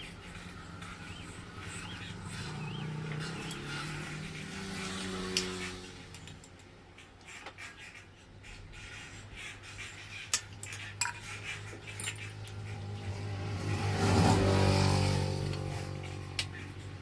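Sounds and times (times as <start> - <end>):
metal tools clinking on engine parts: 3.1 - 3.9, 10.3 - 12.4.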